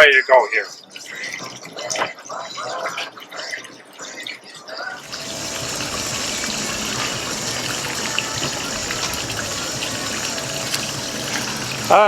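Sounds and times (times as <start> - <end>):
garden hose spraying water: 5.0 - 12.0.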